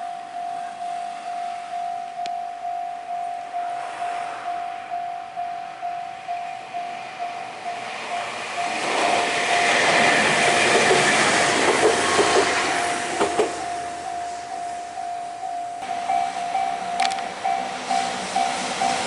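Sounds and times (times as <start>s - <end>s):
level crossing warning bell: 0.0s - 11.6s, 12.4s - 19.0s
electric train passing: 0.0s - 19.0s
wheels clacking over rail joints: 7.8s - 14.1s.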